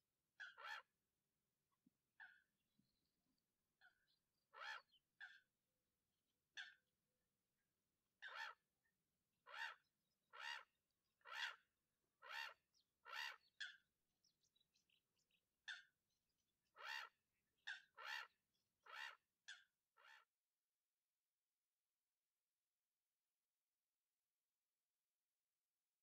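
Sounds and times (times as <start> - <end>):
faint bird chirps: 2.2 - 5.5, 9.4 - 20.3
bird calling: 12.2 - 13.8.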